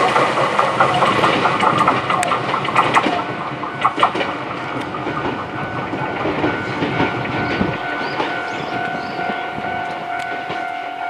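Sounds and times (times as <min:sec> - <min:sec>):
train wheels clattering over rails: 0:00.0 - 0:11.0
steady ringing tone: 0:03.1 - 0:11.0.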